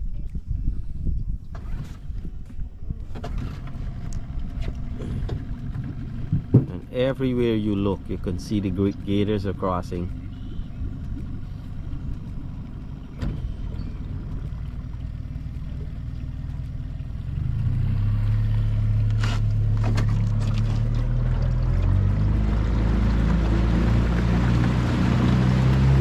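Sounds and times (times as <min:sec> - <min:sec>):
boat motor running: 0:01.5 - 0:26.0.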